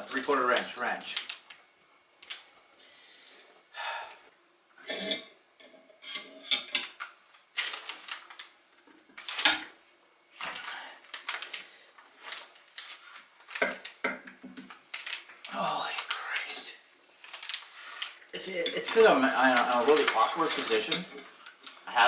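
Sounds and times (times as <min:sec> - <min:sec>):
metal hand tools clinking and scraping: 0:04.8 - 0:07.0, 0:18.5 - 0:21.5.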